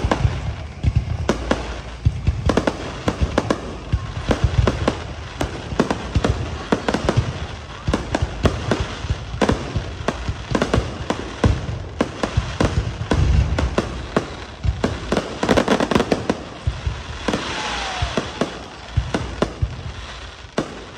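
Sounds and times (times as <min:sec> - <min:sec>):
low rumble: 0:00.0 - 0:05.4
fireworks bangs: 0:00.0 - 0:20.9.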